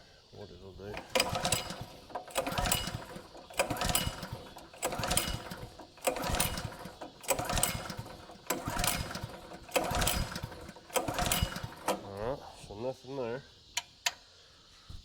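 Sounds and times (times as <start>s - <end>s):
engine pull-start cranking: 0.8s - 12.4s.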